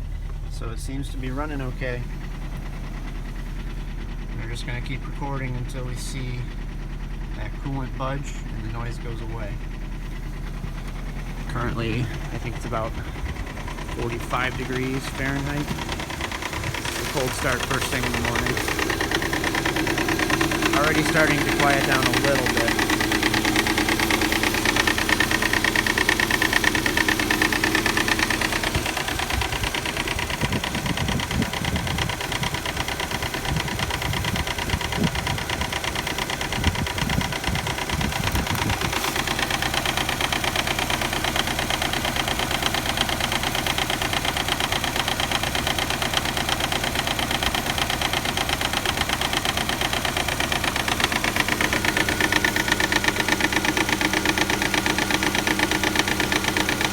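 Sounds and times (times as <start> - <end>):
low uneven rumble: 0.0 - 43.0
engine idling: 0.0 - 56.9.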